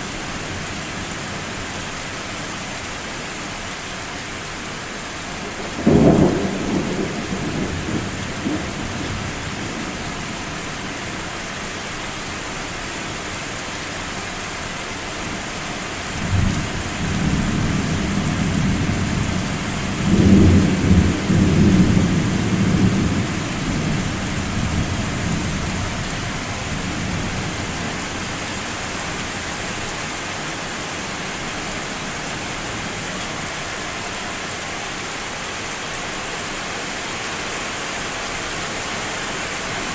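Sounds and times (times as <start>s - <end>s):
steady rain: 0.0s - 39.9s
thunder rumbling: 5.5s - 10.4s.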